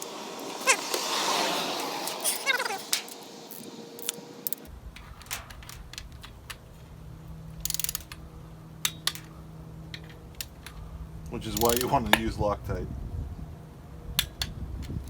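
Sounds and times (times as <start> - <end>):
low steady hum: 4.3 - 15.0
ratchet clicks: 7.5 - 8.2, 11.5 - 12.3.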